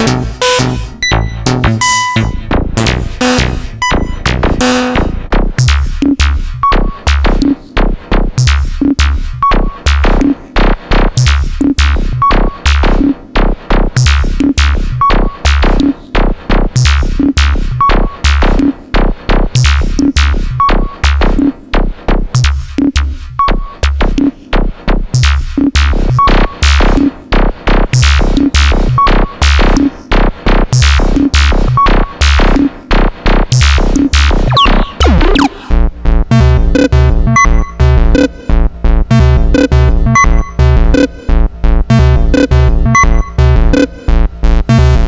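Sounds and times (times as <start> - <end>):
synthesizer bass notes: 0.0 - 5.5, 34.3 - 41.2
synthesizer percussive hits: 33.6 - 38.4.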